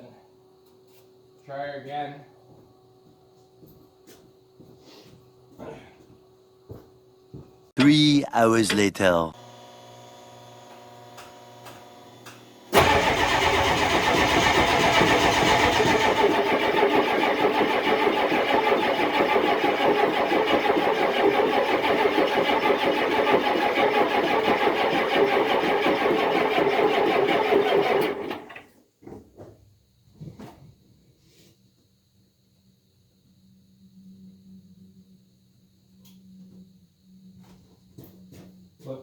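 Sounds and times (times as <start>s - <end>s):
engine cranking on starter motor: 11.1s - 28.7s.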